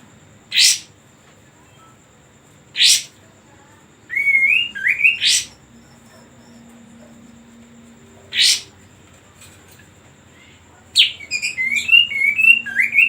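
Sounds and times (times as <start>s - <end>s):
bird sharp call: 0.5s - 0.9s, 2.8s - 3.1s, 4.2s - 5.6s, 8.3s - 8.8s
bird warbling song: 0.5s - 0.9s, 2.8s - 3.1s, 4.1s - 8.9s, 11.0s - 13.0s.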